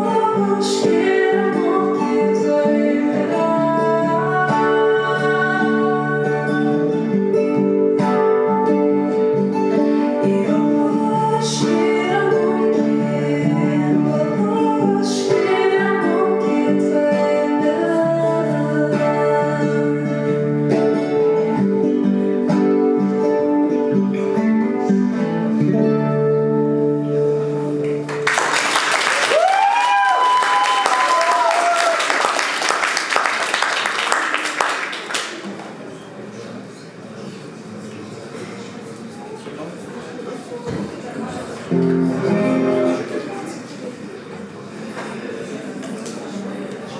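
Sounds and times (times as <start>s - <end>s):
person singing: 0.0s - 27.8s
acoustic guitar: 0.0s - 29.0s, 40.8s - 46.7s
audience applause: 27.8s - 35.9s.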